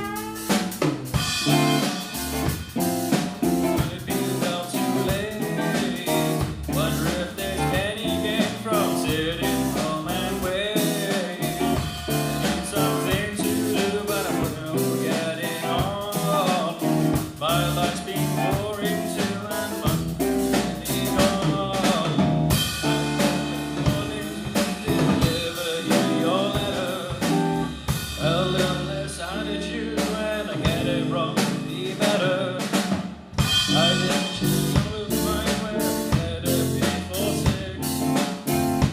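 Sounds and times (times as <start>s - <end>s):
melodic lead line: 0.0s - 14.7s
band playing blues-rock: 0.0s - 38.9s
drum rimshots and bass drum: 0.0s - 38.9s.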